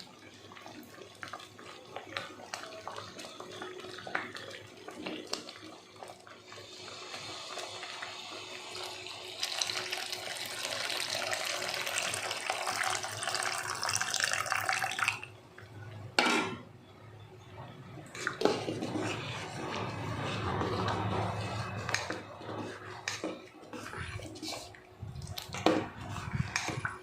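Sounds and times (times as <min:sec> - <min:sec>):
liquid pouring into pot: 0:00.1 - 0:15.3.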